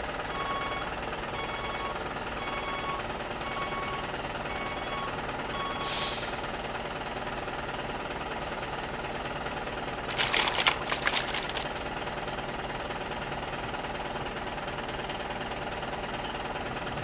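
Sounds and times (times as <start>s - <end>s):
toy truck motor whirring: 10.1s - 11.9s.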